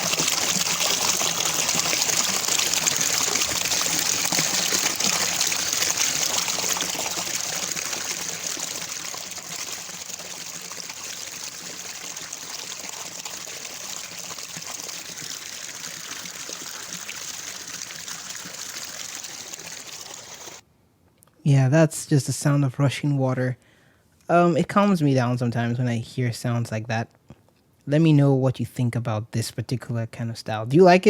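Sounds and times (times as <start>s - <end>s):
rushing water: 0.0s - 20.6s.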